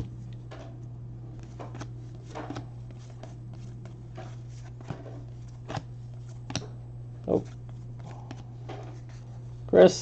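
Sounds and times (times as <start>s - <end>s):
steady low hum: 0.0s - 10.0s
papery flicks of trading cards: 1.4s - 6.7s.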